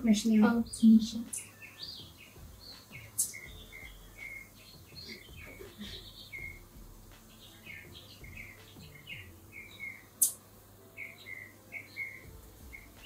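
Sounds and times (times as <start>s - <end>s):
small birds chirping: 0.0s - 13.0s
sharp click: 10.2s - 10.4s.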